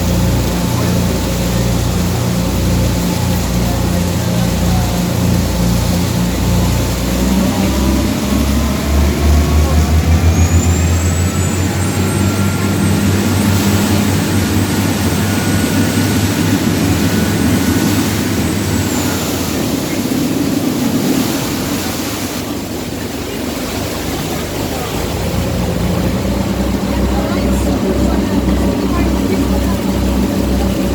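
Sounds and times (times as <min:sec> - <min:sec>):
boat engine running: 0:00.0 - 0:30.9
pulsing low hum: 0:00.0 - 0:30.9
wind and water rushing: 0:00.0 - 0:30.9.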